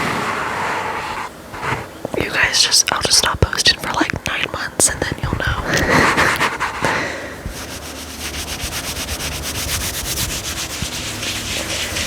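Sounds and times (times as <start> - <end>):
fabric being scratched: 0.0 - 2.1, 5.8 - 12.0.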